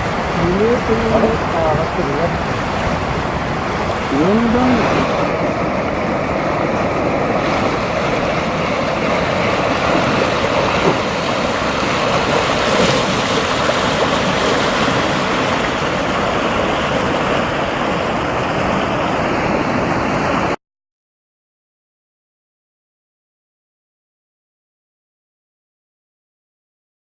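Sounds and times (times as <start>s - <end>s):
river rushing: 0.0s - 20.6s.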